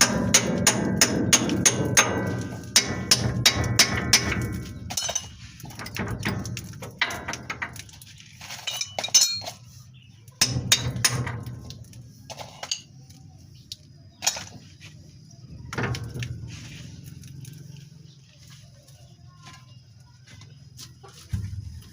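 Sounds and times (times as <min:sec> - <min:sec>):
tools clinking on metal: 0:04.9 - 0:05.4, 0:08.6 - 0:09.7.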